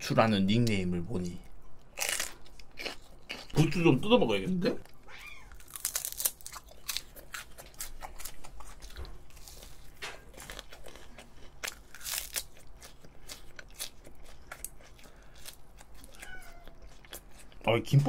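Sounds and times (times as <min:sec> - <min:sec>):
crisp crunching bites: 0:05.5 - 0:17.2.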